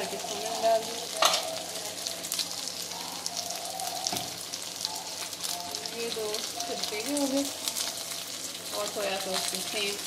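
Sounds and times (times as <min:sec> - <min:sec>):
chicken sizzling in a wok: 0:00.0 - 0:10.0.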